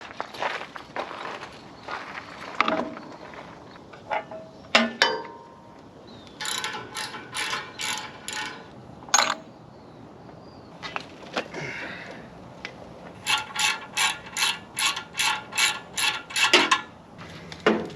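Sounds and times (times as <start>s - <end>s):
metal tool clicks: 6.4s - 9.5s.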